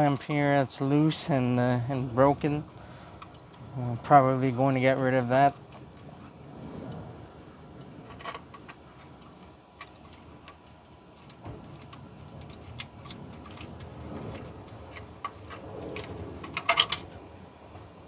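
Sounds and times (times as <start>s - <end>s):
hand tools clinking on metal: 8.1s - 17.1s.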